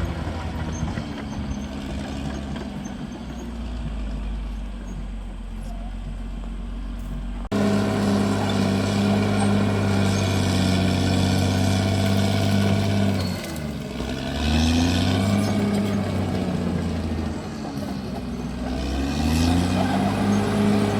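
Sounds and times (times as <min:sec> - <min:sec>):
bulldozer diesel engine running: 0:00.0 - 0:20.9.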